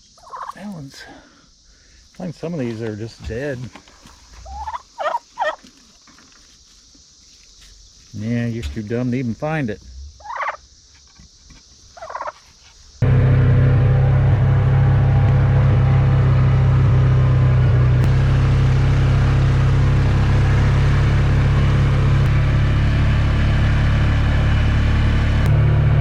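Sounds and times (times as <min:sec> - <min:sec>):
vehicle engine droning steadily: 0:13.0 - 0:26.0.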